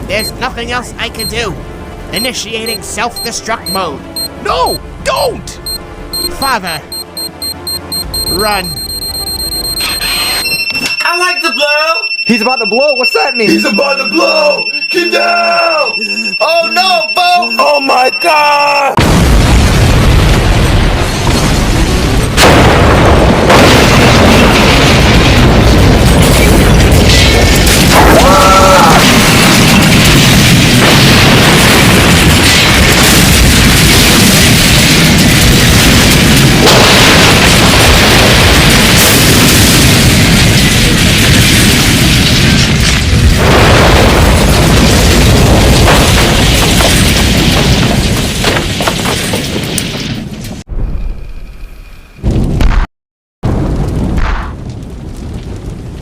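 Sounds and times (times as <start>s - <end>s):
explosion booming rumble: 19.0s - 56.0s.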